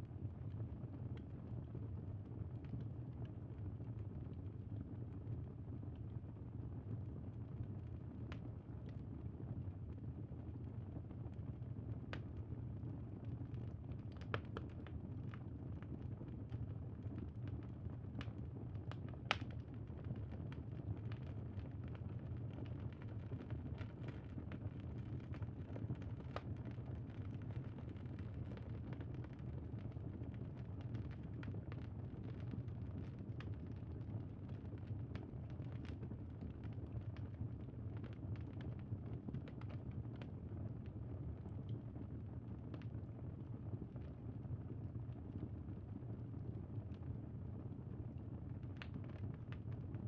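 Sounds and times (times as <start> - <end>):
wood fire crackling: 14.1 - 15.0, 18.8 - 19.7.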